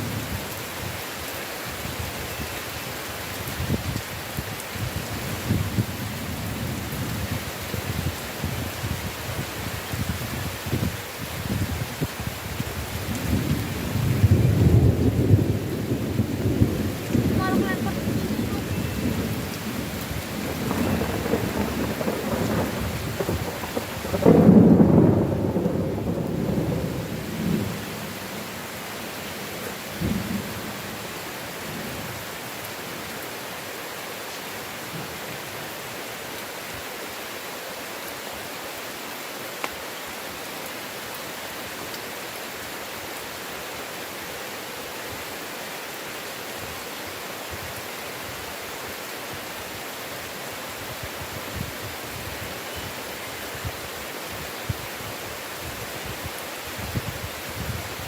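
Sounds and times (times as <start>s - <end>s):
heavy rain: 0.0s - 58.0s
thunder rolling: 13.2s - 28.1s.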